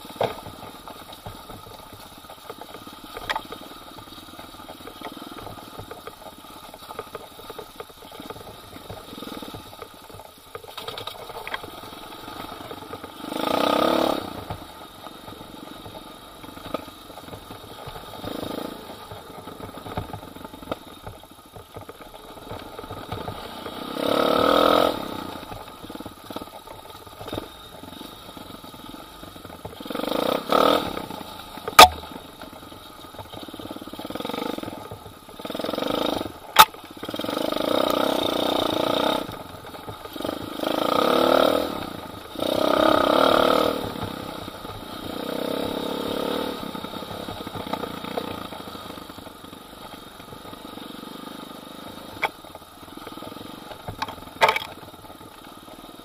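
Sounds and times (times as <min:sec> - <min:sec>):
pit bike engine revving: 0:13.2 - 0:14.4, 0:40.2 - 0:44.2, 0:53.1 - 0:54.8
sharp knock: 0:31.8 - 0:32.1.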